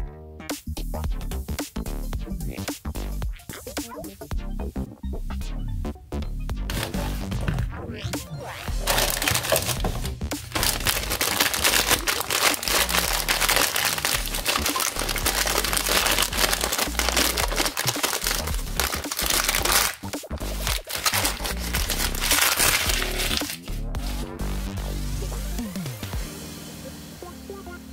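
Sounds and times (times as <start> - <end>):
background music with bass line: 0.0 - 27.9
packaging crinkling: 6.7 - 7.7, 8.6 - 23.8.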